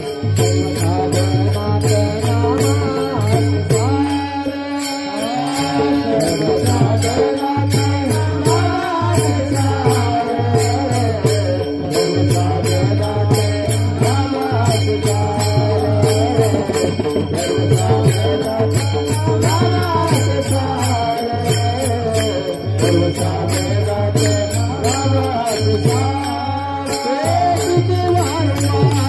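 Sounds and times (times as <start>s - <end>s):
small hand cymbals: 0.0s - 29.0s
steady drum beat: 0.0s - 29.0s.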